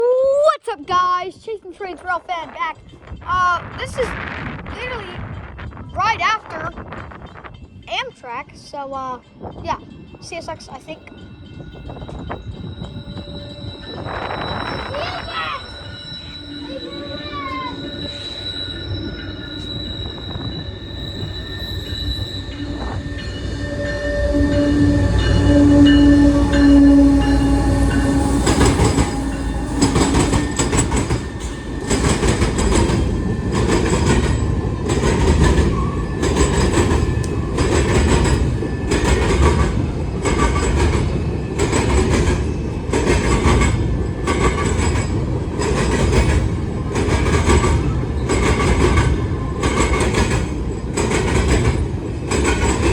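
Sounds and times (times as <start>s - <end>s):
high wheel squeal: 11.4s - 39.0s
clickety-clack of train wheels: 24.9s - 52.9s.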